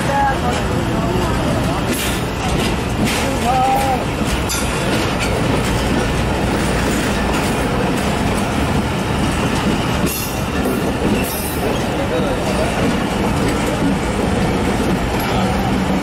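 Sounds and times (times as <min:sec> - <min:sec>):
train wheels rumbling on rail: 0:00.0 - 0:16.0
wheels clicking over track: 0:01.6 - 0:16.0.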